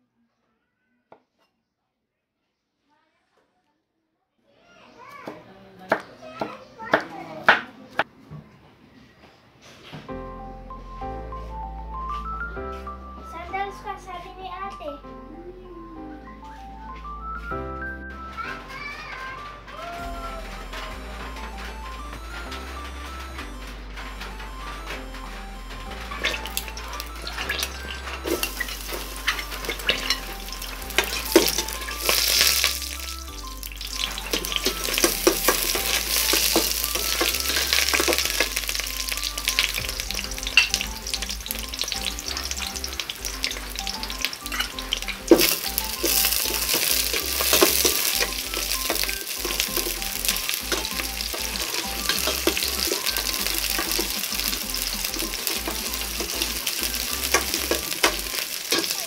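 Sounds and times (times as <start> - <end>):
garlic sizzling in hot oil: 25.9 - 59.0.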